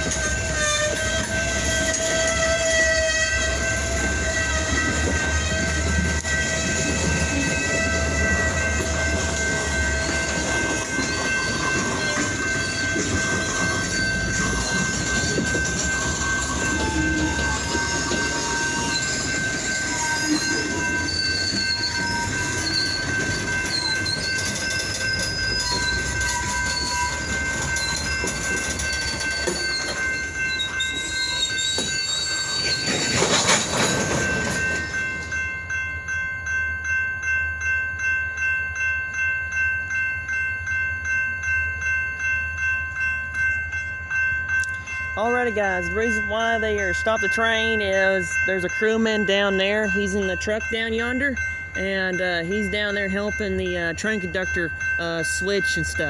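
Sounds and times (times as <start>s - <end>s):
train wheels squealing on rails: 0.0s - 35.5s
diesel locomotives running: 0.0s - 56.0s.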